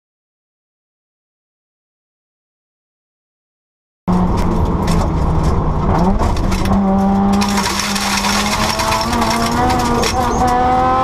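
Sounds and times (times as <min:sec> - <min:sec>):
rally car engine running: 0:04.1 - 0:11.0.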